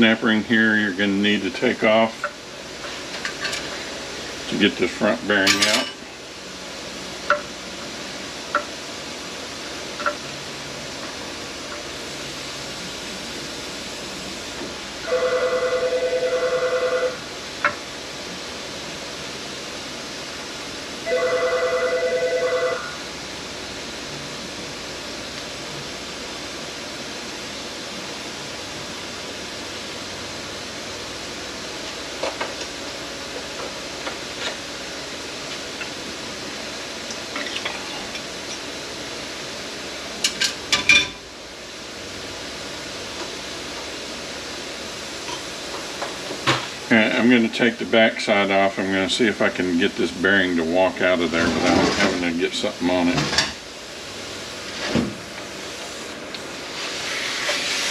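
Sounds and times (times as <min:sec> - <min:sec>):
telephone ringing: 0:15.1 - 0:17.2, 0:21.1 - 0:22.9.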